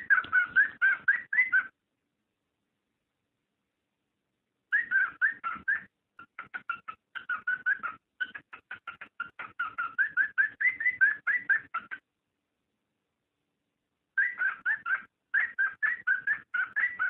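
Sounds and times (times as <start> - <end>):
cockatiel chirping: 0.0 - 1.8, 4.7 - 12.1, 14.2 - 17.0.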